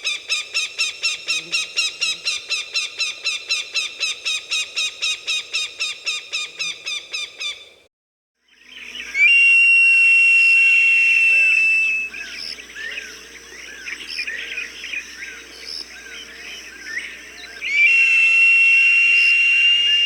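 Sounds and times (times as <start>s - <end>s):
hawk whistling call: 9.2s - 12.3s, 17.6s - 20.0s.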